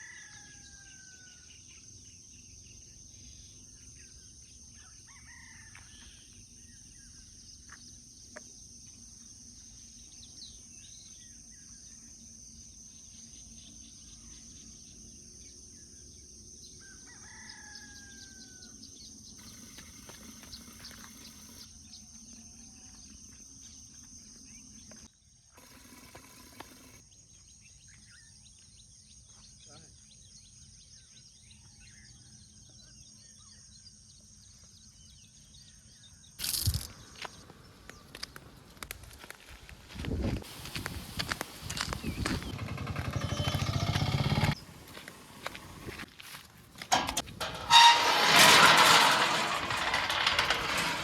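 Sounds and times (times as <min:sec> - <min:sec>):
faint roosters crowing: 0:00.0 - 0:01.6, 0:04.8 - 0:06.3, 0:16.8 - 0:21.5
small birds chirping: 0:40.5 - 0:46.0.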